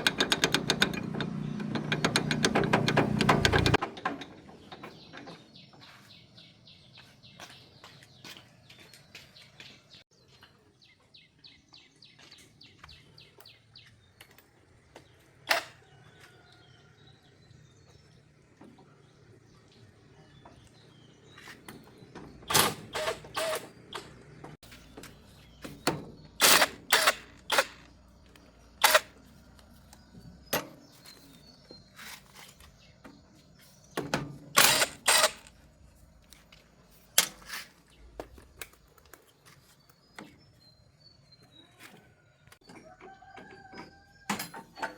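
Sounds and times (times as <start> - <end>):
tools clanking on metal: 0.0 - 5.6, 42.6 - 44.9.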